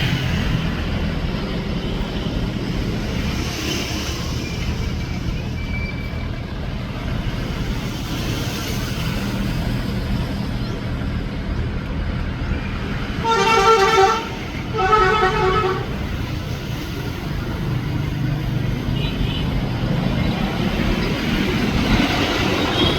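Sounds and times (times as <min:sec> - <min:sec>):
horn blasts: 0:13.2 - 0:16.2.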